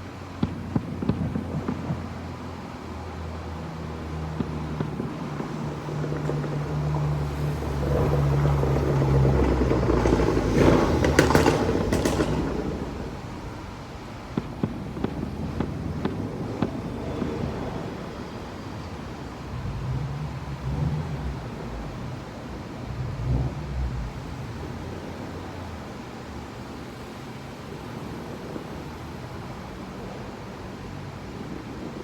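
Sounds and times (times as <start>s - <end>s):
firework pops and bangs: 0.3s - 2.6s, 3.2s - 19.6s
vehicle passing: 1.4s - 27.2s.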